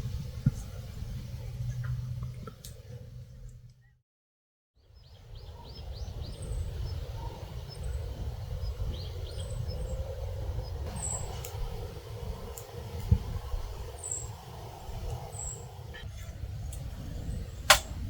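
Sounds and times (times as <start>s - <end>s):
small birds chirping: 4.8s - 11.8s, 12.5s - 16.1s.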